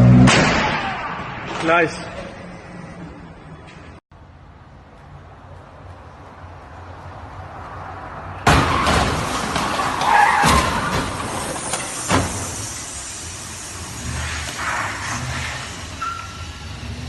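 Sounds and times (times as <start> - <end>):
car crash impact: 0.0 - 1.6, 8.4 - 13.0
shattering debris: 8.5 - 12.4.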